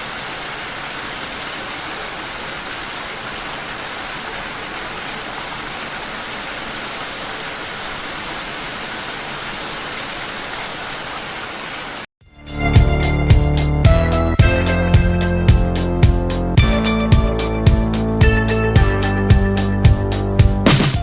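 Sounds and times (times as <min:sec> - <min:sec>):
rain falling: 0:00.0 - 0:12.1.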